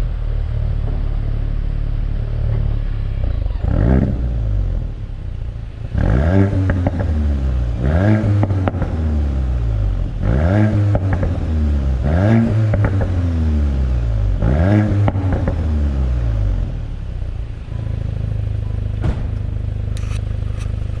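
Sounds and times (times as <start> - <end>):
car engine idling: 0.0 - 21.0
car engine revving: 0.0 - 21.0.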